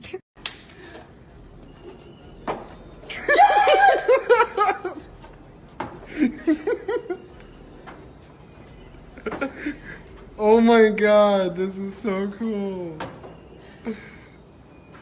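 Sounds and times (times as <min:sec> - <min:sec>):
person laughing hard: 0:03.1 - 0:05.1, 0:06.1 - 0:07.3.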